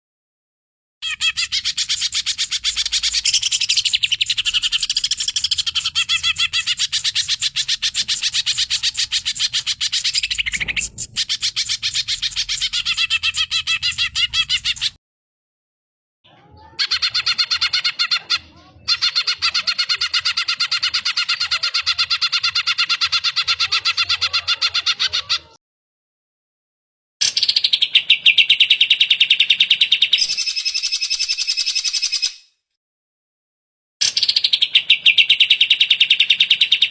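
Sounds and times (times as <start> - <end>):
bird chirping rapidly: 1.0 - 15.0, 30.2 - 32.5.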